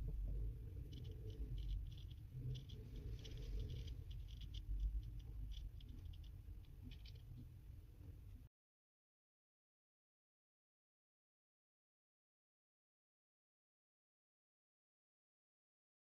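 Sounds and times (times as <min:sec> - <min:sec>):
low steady hum: 0:00.0 - 0:08.5
small tools clicking and scratching: 0:00.8 - 0:07.4.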